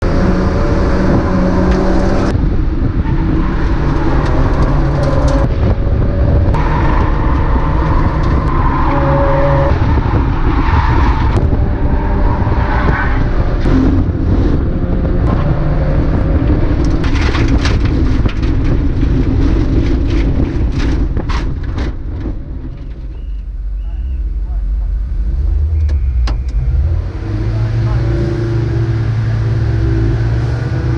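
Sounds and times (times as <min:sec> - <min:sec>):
race car engine running hard: 0:23.6 - 0:30.9.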